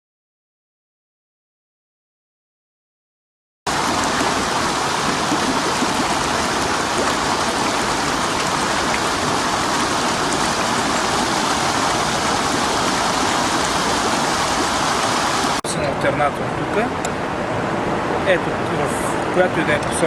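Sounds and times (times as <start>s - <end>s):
water rushing: 3.7s - 15.9s.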